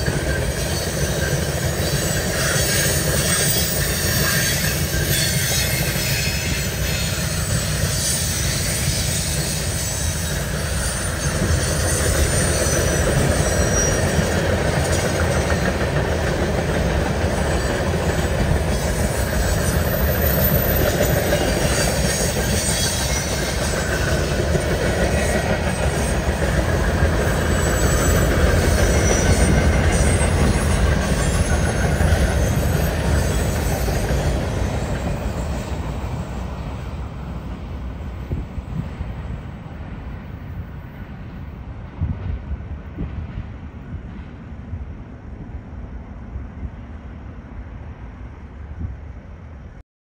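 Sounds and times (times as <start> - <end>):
faint high wheel squeal: 0.0 - 15.9, 17.2 - 37.6
train wheels rumbling on rail: 0.0 - 49.8.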